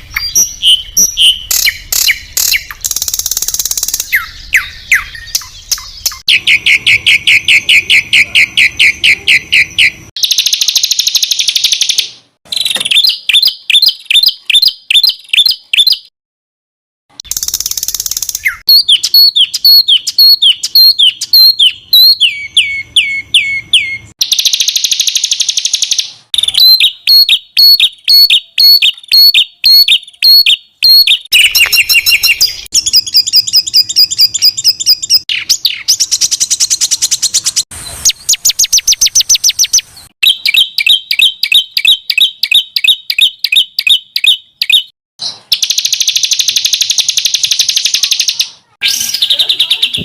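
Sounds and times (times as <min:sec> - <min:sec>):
songbirds singing trills and rattles: 0:00.0 - 0:16.1.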